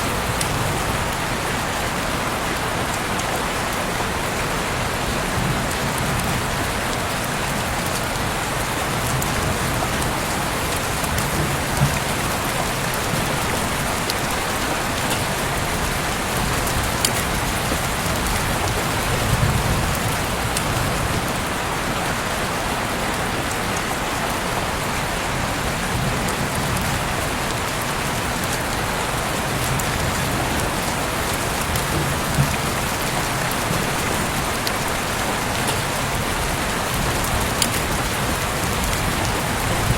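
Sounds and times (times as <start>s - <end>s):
heavy rain falling: 0.0s - 39.9s
raindrop tick: 8.7s - 21.5s, 26.2s - 39.9s.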